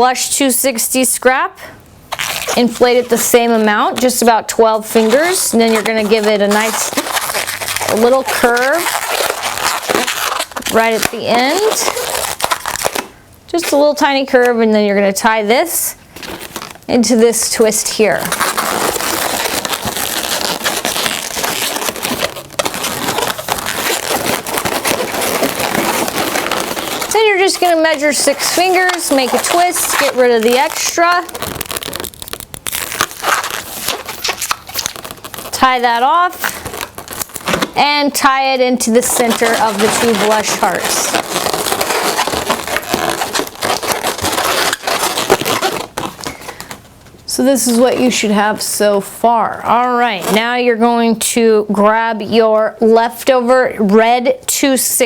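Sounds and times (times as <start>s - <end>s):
balloons squeaking and crackling: 2.1s - 14.3s, 16.0s - 47.0s.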